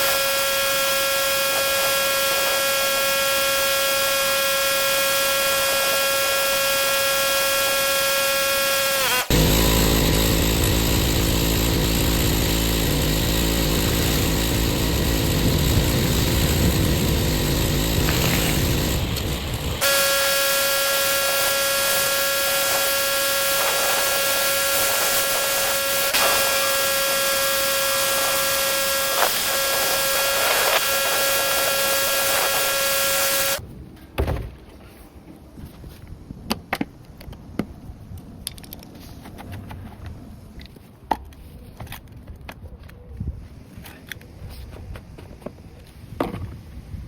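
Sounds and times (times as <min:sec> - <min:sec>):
pressure washer spraying: 0:00.0 - 0:33.6.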